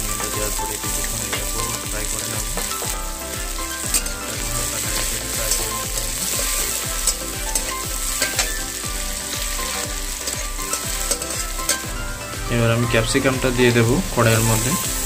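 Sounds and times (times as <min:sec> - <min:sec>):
vegetables sizzling in hot oil: 0:00.0 - 0:15.0
metal spatula scraping pan: 0:03.6 - 0:12.0.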